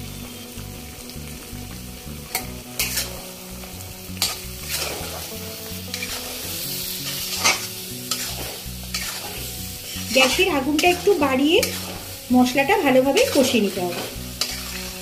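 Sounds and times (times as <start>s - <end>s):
food sizzling in hot oil: 0.0s - 15.0s
spatula scraping pan: 2.3s - 3.2s, 4.2s - 15.0s.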